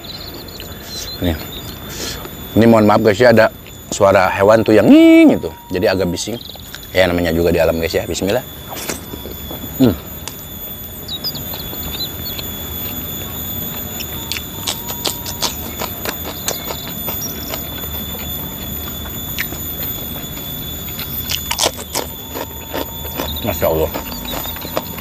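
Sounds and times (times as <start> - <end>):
animal high-pitched whine: 0.0 - 25.0
small chirps: 0.0 - 25.0
person chewing: 8.6 - 10.5, 11.2 - 25.0.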